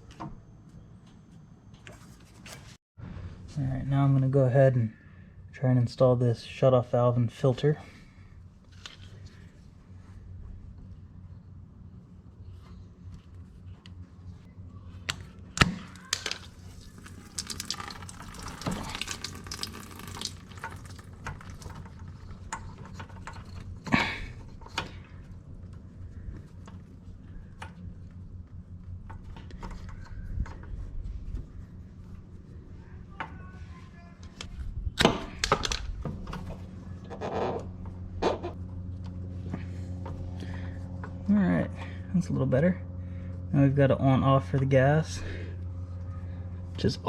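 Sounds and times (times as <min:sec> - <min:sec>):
steady low hum: 0:00.0 - 0:47.0
clicks and knocks of small parts: 0:15.0 - 0:24.9.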